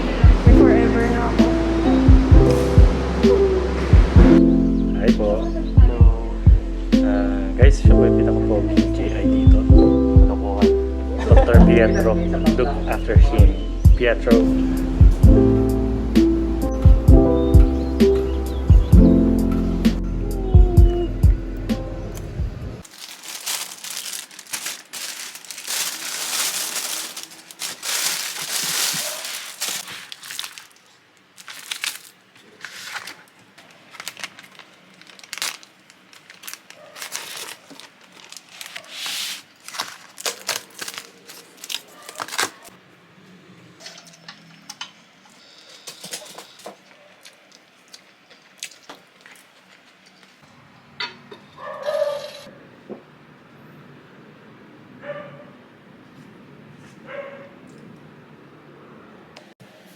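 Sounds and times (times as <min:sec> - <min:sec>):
crinkling and rustling: 0:22.8 - 0:42.8.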